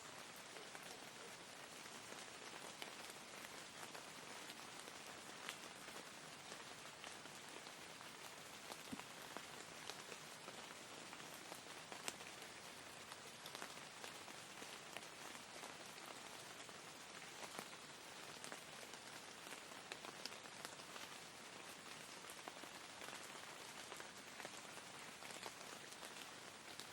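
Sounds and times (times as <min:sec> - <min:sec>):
soft steady rain: 0:00.0 - 0:26.9.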